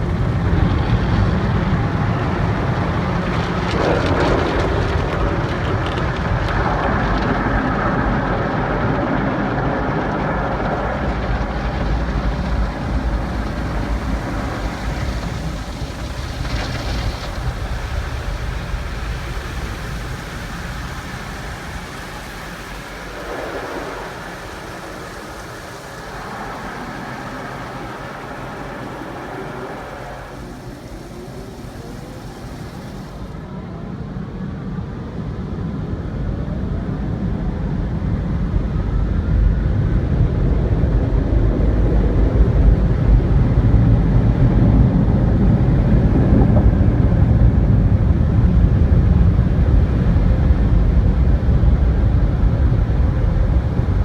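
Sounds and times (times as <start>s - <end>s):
car wash equipment rushing: 0.0s - 34.7s.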